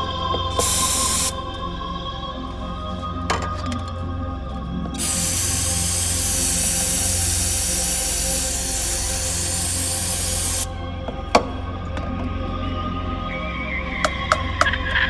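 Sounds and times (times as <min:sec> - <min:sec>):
background music: 0:00.0 - 0:15.0
aerosol can spraying hiss: 0:00.5 - 0:01.4, 0:05.0 - 0:10.7.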